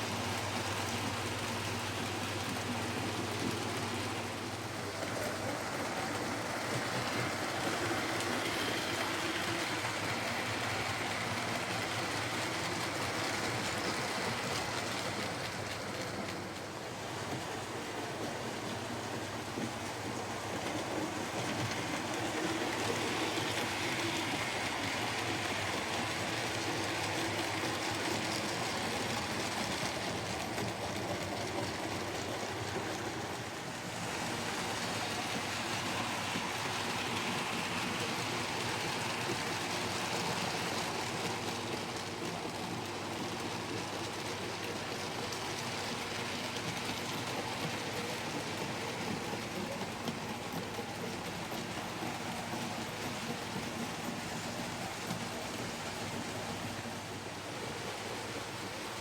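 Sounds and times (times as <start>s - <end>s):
model train motor hum: 0.1s - 59.0s.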